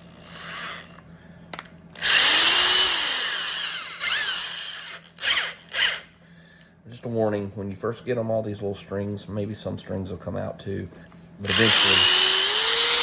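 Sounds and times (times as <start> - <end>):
power tool motor spinning: 0.1 - 1.0, 2.0 - 6.2, 11.5 - 13.0.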